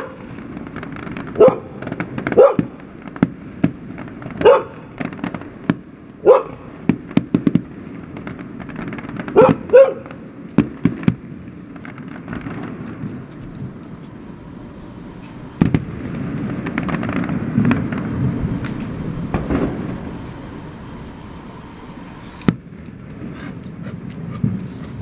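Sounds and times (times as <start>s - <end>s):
fireworks bangs and crackles: 0.0s - 25.0s
dog barking: 1.4s - 1.8s, 2.4s - 2.7s, 4.4s - 4.8s, 6.2s - 6.6s, 9.4s - 10.1s.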